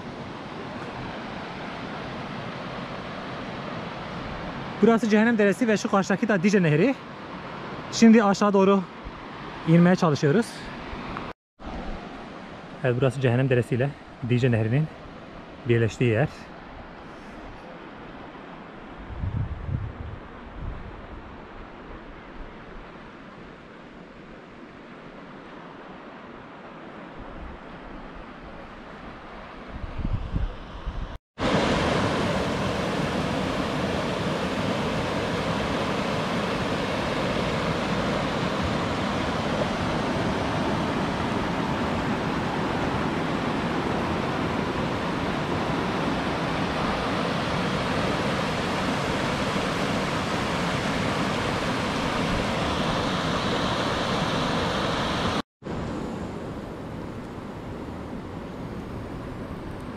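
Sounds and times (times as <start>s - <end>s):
fast-flowing stream rushing: 31.4s - 55.4s.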